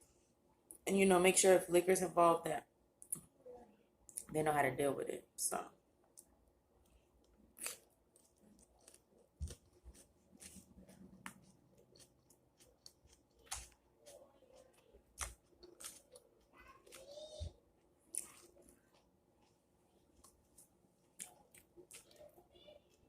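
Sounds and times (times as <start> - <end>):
chewing and crunching food: 6.1 - 23.0.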